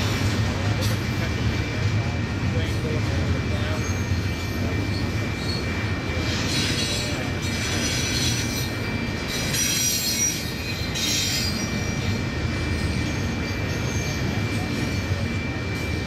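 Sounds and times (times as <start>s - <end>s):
train rumbling past: 0.0s - 16.0s
high-pitched wheel squeal: 9.3s - 12.2s.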